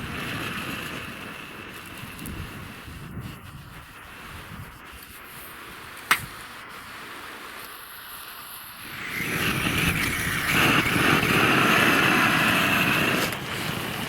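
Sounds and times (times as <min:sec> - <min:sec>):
campfire crackling hiss: 0:00.0 - 0:14.0
sharp click: 0:06.0 - 0:06.4.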